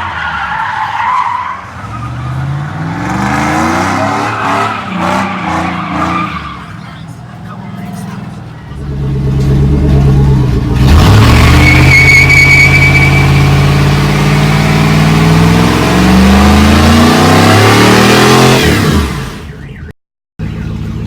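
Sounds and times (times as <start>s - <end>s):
truck engine at high revs: 0.0s - 19.6s
tyre squeal: 11.1s - 14.2s.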